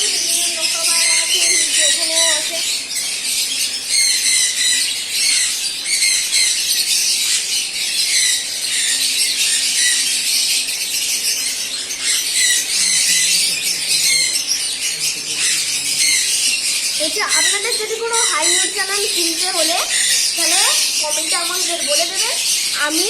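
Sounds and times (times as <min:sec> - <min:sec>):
small birds chattering and squawking: 0:00.0 - 0:23.0.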